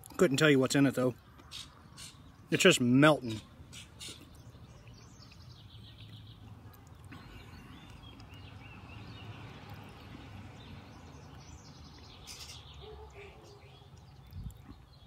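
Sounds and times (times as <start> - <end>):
birds chirping faintly: 0.0 - 15.0
outdoor background noise: 0.0 - 15.0
bird warbling calls: 1.5 - 2.3, 3.3 - 4.4, 12.1 - 13.9.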